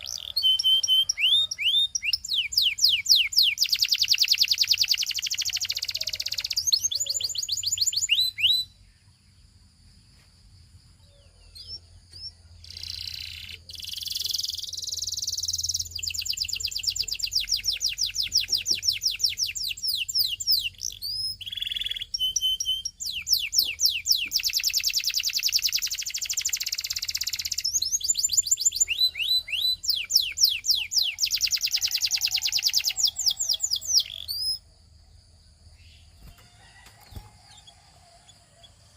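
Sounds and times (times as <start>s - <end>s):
canary trilling: 0.0s - 8.7s, 12.6s - 34.6s.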